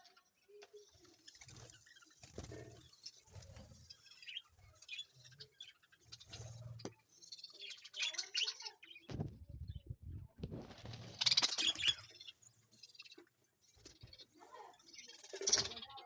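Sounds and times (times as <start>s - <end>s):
parrots chirping and chattering: 0.0s - 16.0s.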